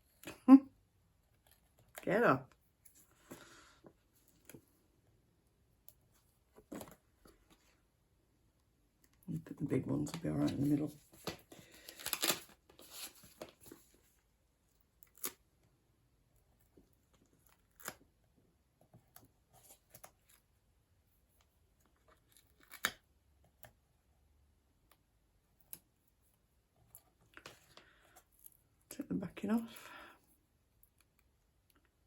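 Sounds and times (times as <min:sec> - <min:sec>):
paper rustling: 0:10.1 - 0:14.0.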